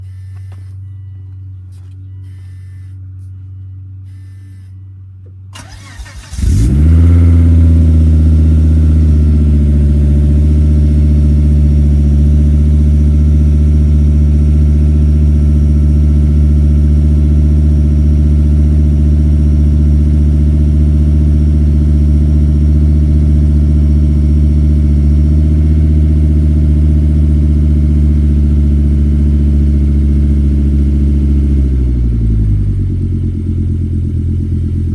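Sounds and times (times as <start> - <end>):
low steady hum: 0.0 - 21.0
car engine idling: 0.0 - 34.9
engine starter cranking: 5.5 - 6.8.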